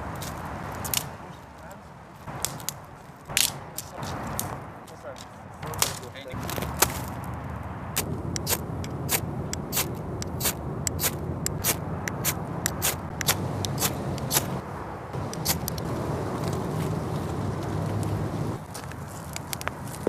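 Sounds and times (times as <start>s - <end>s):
firewood snapping and crackling: 0.0s - 14.6s, 15.2s - 20.0s
steady low rumble: 6.4s - 20.0s.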